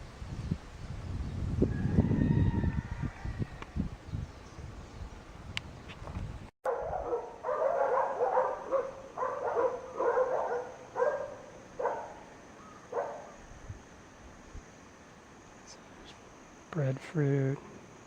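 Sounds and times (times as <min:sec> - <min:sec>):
dog barking: 0:06.7 - 0:12.3, 0:12.9 - 0:13.4.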